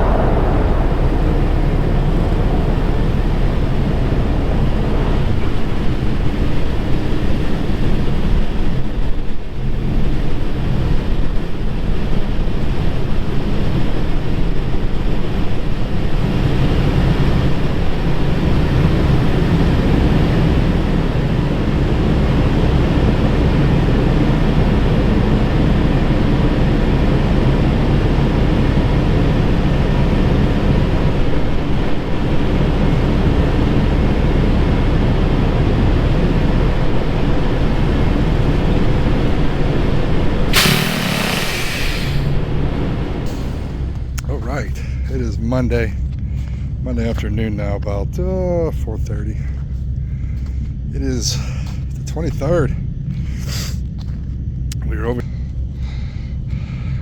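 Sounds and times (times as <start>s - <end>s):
diesel truck engine droning: 0.0s - 57.0s
road and wind noise: 0.0s - 57.0s.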